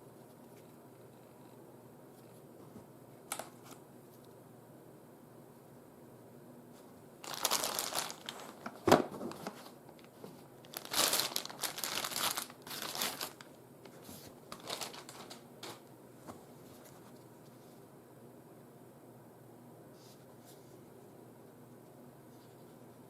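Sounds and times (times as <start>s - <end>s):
crinkling and rustling: 7.2s - 17.6s.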